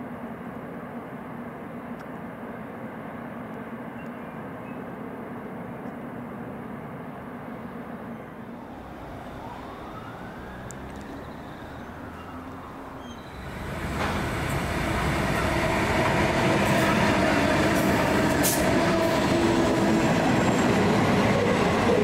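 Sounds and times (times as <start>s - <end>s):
rail noise: 0.0s - 22.0s
diesel train engine hum: 0.1s - 22.0s
rising whine: 8.6s - 21.3s.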